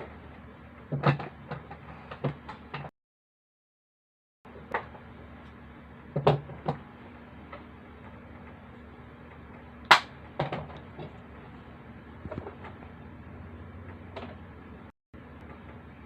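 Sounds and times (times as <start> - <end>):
steady low hum: 4.5 - 16.0.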